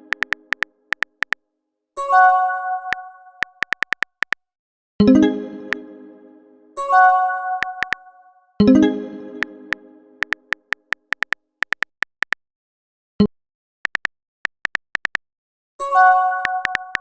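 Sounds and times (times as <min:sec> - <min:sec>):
keyboard tap clicks: 0:00.1 - 0:01.4, 0:03.4 - 0:04.4, 0:07.7 - 0:08.0, 0:10.2 - 0:12.4, 0:13.9 - 0:15.2, 0:16.4 - 0:17.0.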